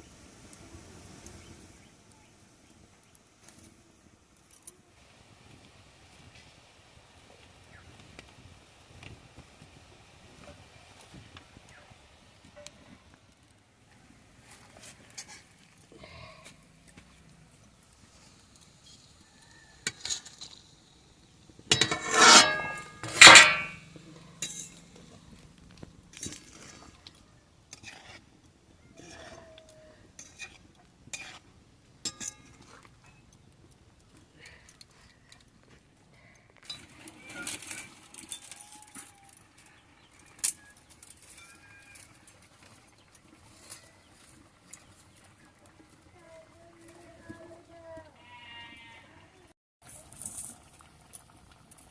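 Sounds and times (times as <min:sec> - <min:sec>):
ringing metal clangs: 0:21.7 - 0:23.8
metal dishes clinking: 0:21.7 - 0:25.0, 0:32.1 - 0:32.6.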